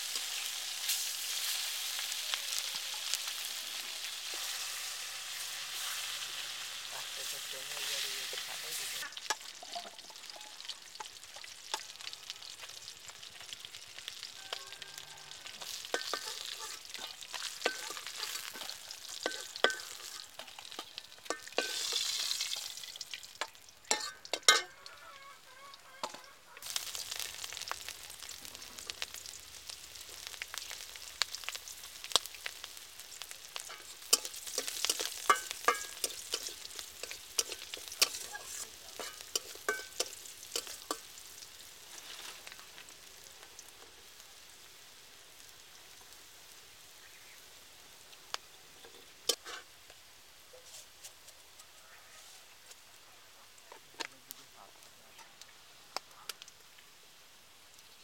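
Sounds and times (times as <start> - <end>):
food sizzling in hot oil: 0.0 - 51.6, 52.3 - 58.0
metal spatula scraping a wok: 2.6 - 9.5, 15.6 - 22.7, 23.9 - 24.8, 33.6 - 41.1, 48.8 - 49.7.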